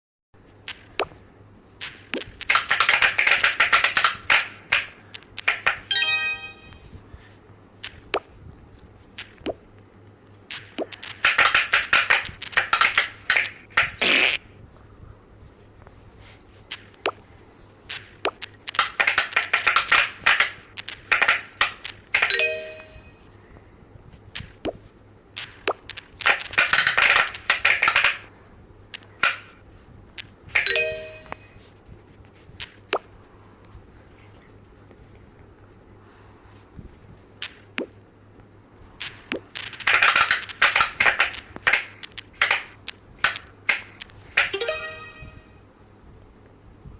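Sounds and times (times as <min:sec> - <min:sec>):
fidget toy popping clicks: 0:01.8 - 0:05.8, 0:10.5 - 0:14.1, 0:17.9 - 0:22.4, 0:25.4 - 0:28.3, 0:39.0 - 0:44.7
short chiming tone: 0:05.9 - 0:06.8, 0:22.3 - 0:23.2, 0:44.6 - 0:45.6.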